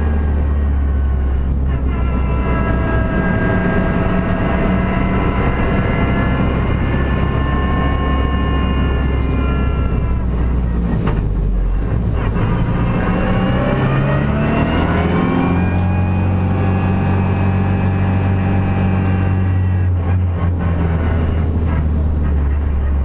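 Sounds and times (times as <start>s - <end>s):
race car engine accelerating: 0.0s - 23.0s.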